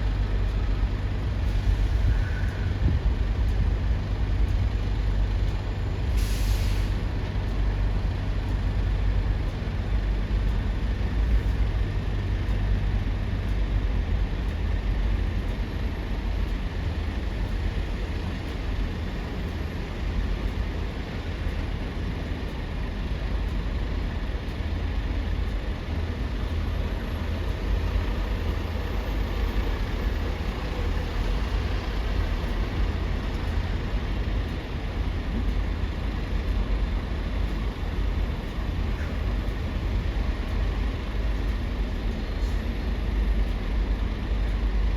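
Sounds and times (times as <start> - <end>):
heavy vehicles rumbling: 0.0 - 44.9
truck air brake hiss: 1.4 - 2.9, 6.0 - 7.2.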